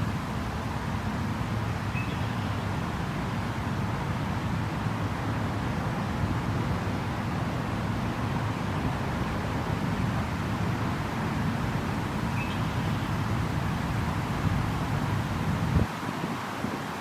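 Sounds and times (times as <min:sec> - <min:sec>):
creek flowing: 0:00.0 - 0:17.0
faint high chirp: 0:01.9 - 0:02.6, 0:12.3 - 0:13.1.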